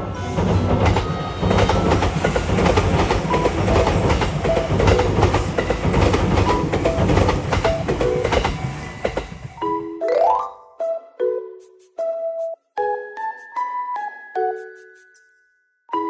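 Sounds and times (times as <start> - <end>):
train rumble: 0.0 - 9.6
train wheels clacking on rails: 0.0 - 9.6.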